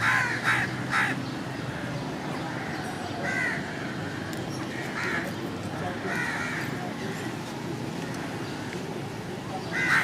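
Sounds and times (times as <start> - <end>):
steady background noise: 0.0 - 10.0
bird calls: 9.5 - 10.0.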